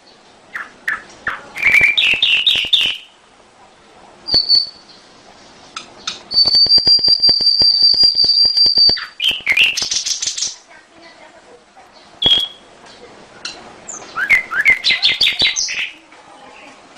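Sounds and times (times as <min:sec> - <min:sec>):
canary singing: 0:00.0 - 0:03.2, 0:04.2 - 0:05.1, 0:05.7 - 0:10.8, 0:11.9 - 0:16.8.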